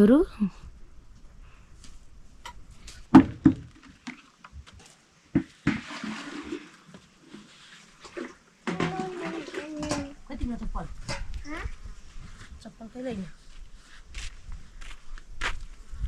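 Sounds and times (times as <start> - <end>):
sharp knocks: 3.1 - 3.7
rushing water noise: 5.6 - 9.6.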